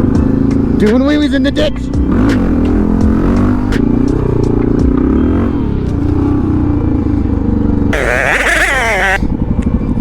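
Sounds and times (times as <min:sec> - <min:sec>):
motorcycle engine revving: 0:02.0 - 0:09.4.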